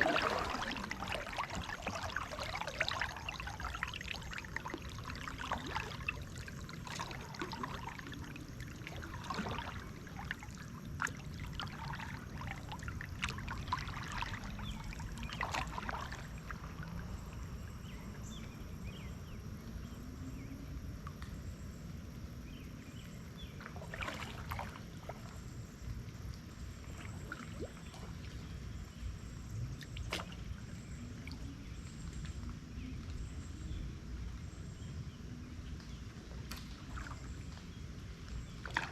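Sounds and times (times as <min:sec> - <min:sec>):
paddle splashing water: 0:00.0 - 0:19.9, 0:22.5 - 0:33.8, 0:35.6 - 0:38.9.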